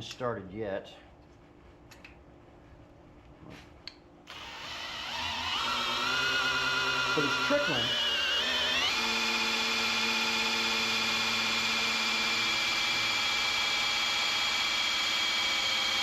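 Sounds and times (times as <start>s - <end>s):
battery drill whining: 4.3s - 16.0s.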